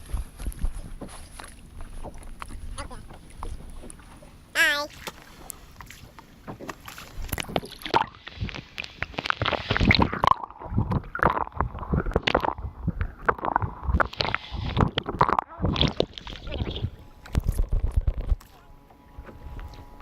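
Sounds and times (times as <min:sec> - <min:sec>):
water slapping against boat hull: 0:00.0 - 0:20.0.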